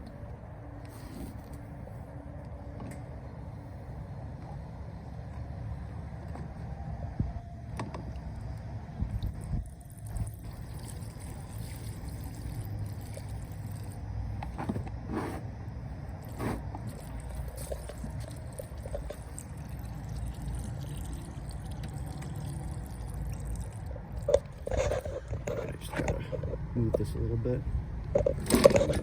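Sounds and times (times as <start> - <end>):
gasoline pouring into container: 10.0 - 14.0, 16.2 - 25.1.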